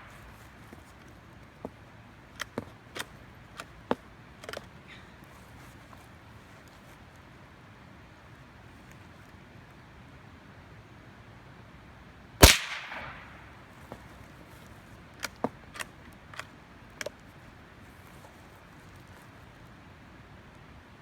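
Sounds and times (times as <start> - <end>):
loud gunshot: 12.4 - 13.4
faint sharp cracks: 12.4 - 14.0.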